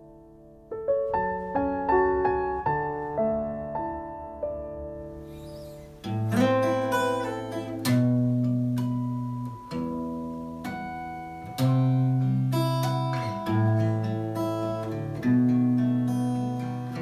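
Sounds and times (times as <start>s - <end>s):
acoustic guitar strumming chords: 5.3s - 17.0s.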